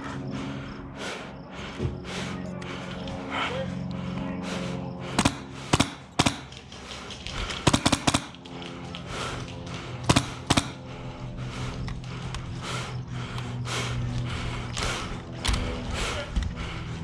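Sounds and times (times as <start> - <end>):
airsoft gunfire: 5.2 - 6.6, 7.4 - 8.5, 10.0 - 10.9.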